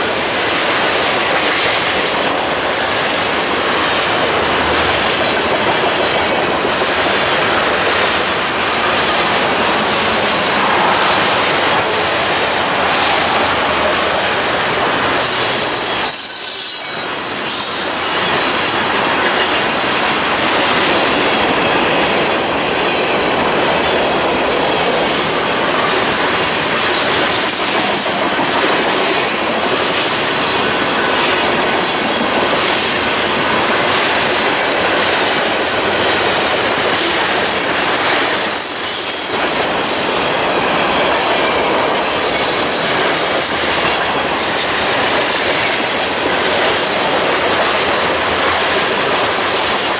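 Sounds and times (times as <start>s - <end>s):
train cars rolling on rails: 0.0s - 49.9s
wheels squealing: 11.6s - 19.0s.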